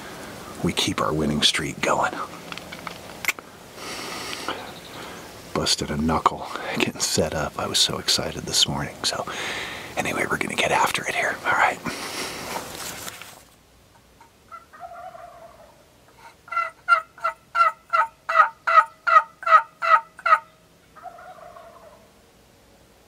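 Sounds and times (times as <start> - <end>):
turkey call yelps: 14.2 - 22.1.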